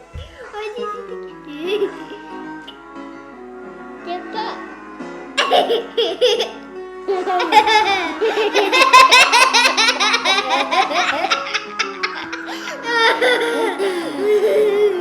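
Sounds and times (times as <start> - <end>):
music playing: 0.0 - 15.0
child giggling: 5.4 - 6.6, 7.2 - 15.0.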